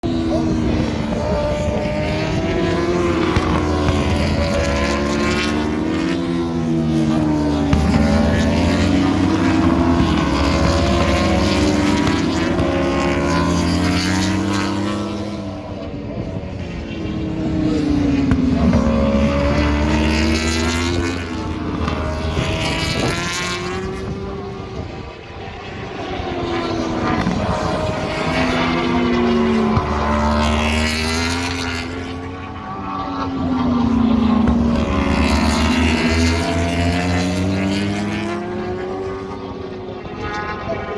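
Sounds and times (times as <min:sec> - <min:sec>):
racing motorcycles passing at speed: 0:00.0 - 0:40.9.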